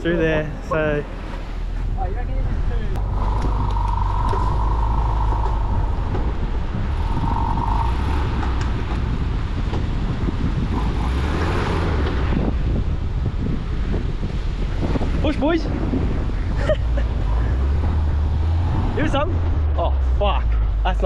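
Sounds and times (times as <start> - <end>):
car engine running under load: 3.0 - 15.0.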